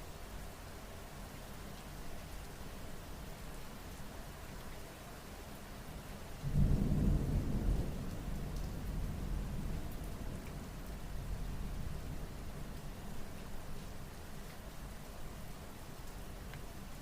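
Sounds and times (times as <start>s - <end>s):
steady rain: 0.0s - 17.0s
thunder rumble: 6.5s - 12.3s.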